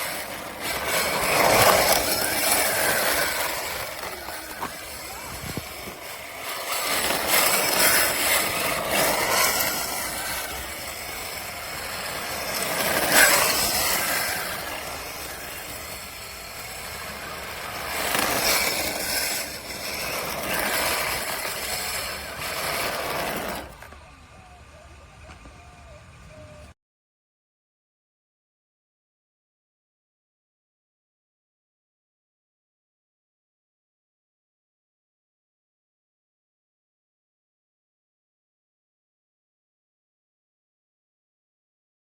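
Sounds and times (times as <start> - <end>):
tyre noise: 0.0 - 26.7
rc car motor whine: 0.0 - 26.8.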